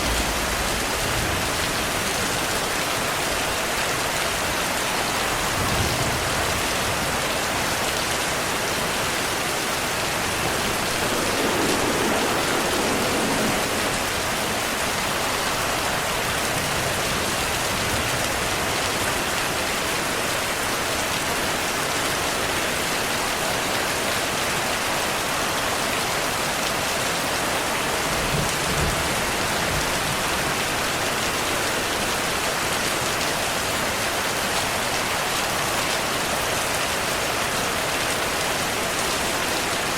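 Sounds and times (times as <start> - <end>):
distant thunder rumbles: 0.0 - 2.8, 9.0 - 18.1
rain pattering on surfaces: 0.0 - 39.9.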